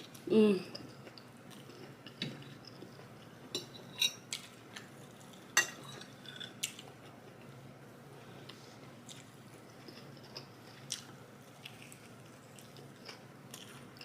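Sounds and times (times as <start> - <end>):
cutlery clinking on a plate: 3.5 - 4.5, 5.5 - 6.5.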